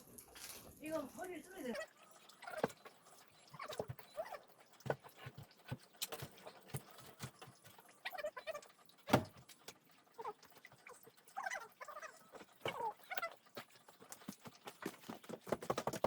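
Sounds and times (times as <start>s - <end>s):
wood and tools knocking: 14.2s - 16.0s.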